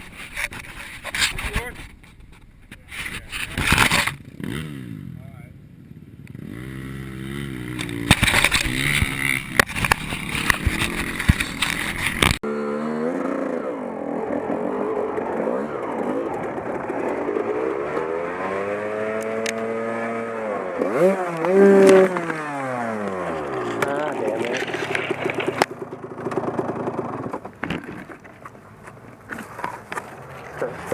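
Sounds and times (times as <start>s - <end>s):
motorcycle engines revving: 2.8s - 30.9s
sharp knocks and clatter: 7.8s - 12.4s, 23.4s - 30.0s.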